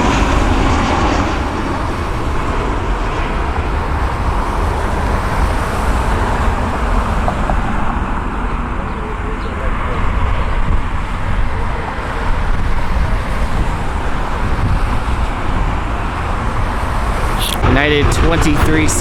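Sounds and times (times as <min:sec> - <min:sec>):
low rumbling traffic noise: 0:00.0 - 0:19.0.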